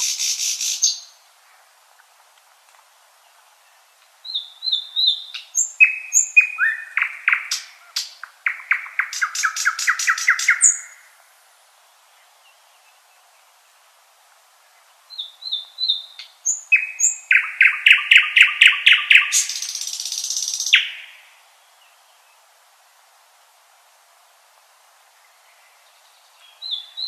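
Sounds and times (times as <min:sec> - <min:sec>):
nightingale singing: 0:00.0 - 0:01.2, 0:03.2 - 0:11.1, 0:14.7 - 0:22.4, 0:25.2 - 0:27.0.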